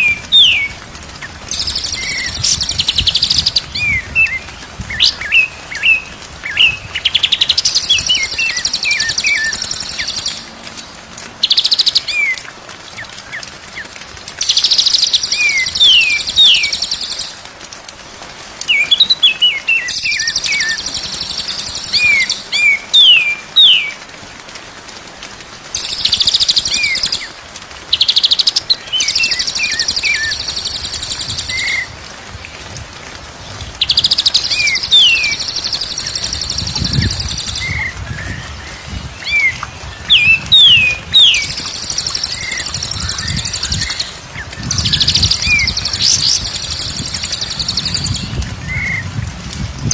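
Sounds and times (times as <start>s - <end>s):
bird singing: 33.8s - 48.3s.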